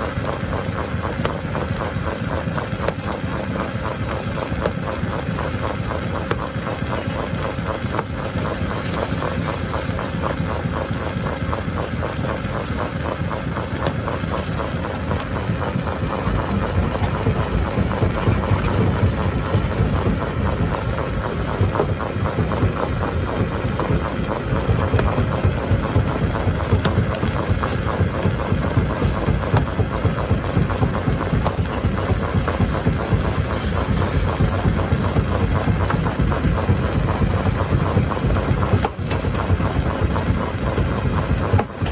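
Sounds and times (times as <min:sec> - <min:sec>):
stone crusher rumbling: 0:00.0 - 0:41.9.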